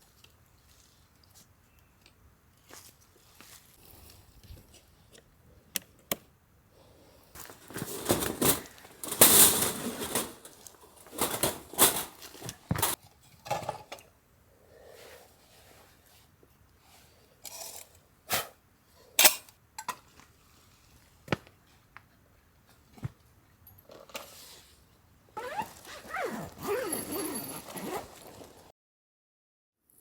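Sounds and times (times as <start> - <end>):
rustling and scraping: 7.4 - 13.0, 25.4 - 28.7.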